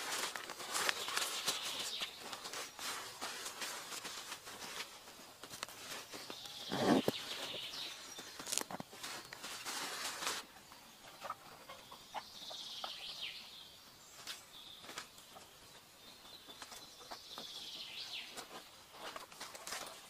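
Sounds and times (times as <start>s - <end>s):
faint clicks and rustles: 0.0s - 13.0s, 14.1s - 20.0s.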